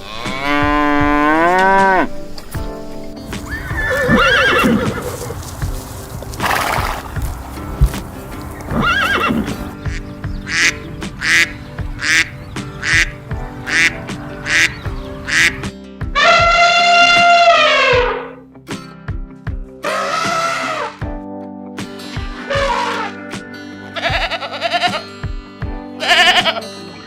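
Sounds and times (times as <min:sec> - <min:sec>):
background music: 0:00.0 - 0:27.0
horse whinnying: 0:03.4 - 0:05.4, 0:06.4 - 0:07.1, 0:08.7 - 0:09.8, 0:19.8 - 0:21.0
horse snorting: 0:03.4 - 0:11.5.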